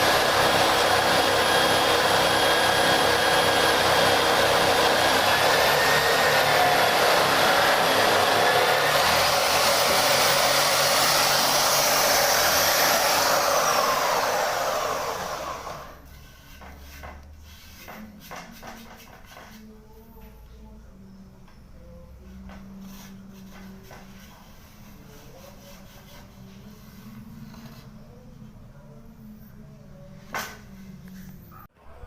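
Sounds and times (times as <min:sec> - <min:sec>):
small electric motor whining: 0:00.0 - 0:16.0.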